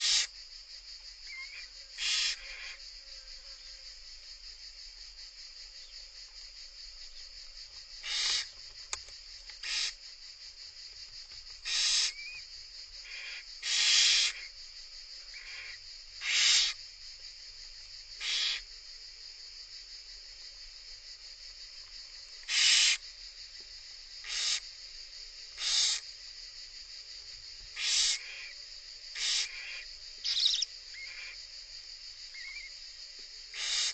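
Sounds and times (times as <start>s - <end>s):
owls rasping hiss calls: 0.0s - 0.4s, 1.2s - 2.9s, 8.0s - 8.6s, 9.5s - 10.1s, 11.6s - 14.6s, 15.3s - 16.8s, 18.2s - 18.7s, 22.4s - 23.1s, 24.2s - 24.8s, 25.5s - 26.2s, 27.7s - 31.5s, 32.3s - 32.8s, 33.4s - 33.9s
steady high hiss: 0.0s - 33.9s.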